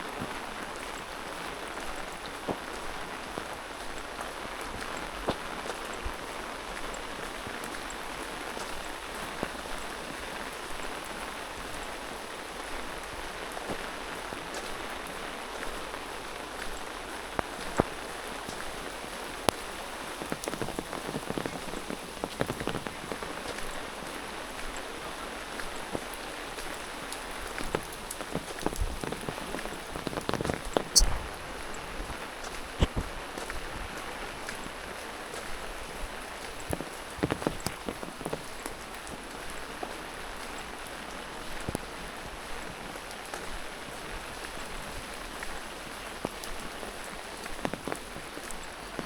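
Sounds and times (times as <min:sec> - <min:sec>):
steady rain: 0:00.0 - 0:49.0
raindrops tapping: 0:13.4 - 0:40.2, 0:44.7 - 0:49.0.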